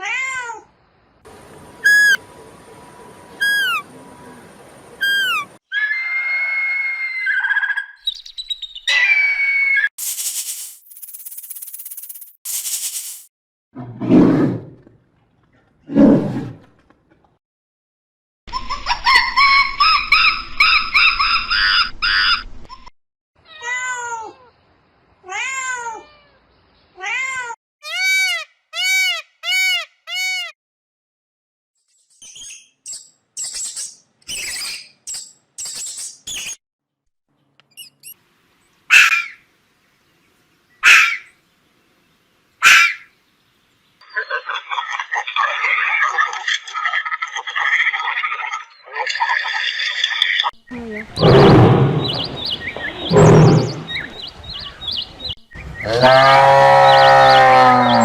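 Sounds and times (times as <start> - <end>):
cat high chirps: 1.8 - 2.2, 3.4 - 3.8, 5.0 - 5.5.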